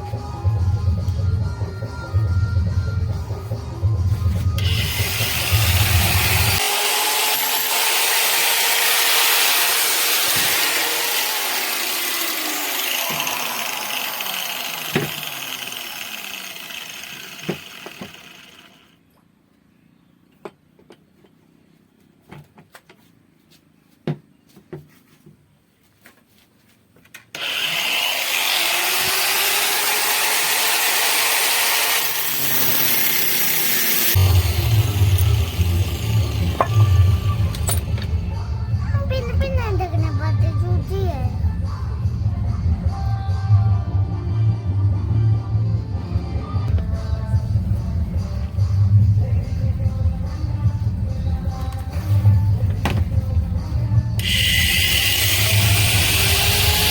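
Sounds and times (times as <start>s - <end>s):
electric drill shaving wood: 4.5s - 18.9s, 27.3s - 38.4s, 54.2s - 56.9s.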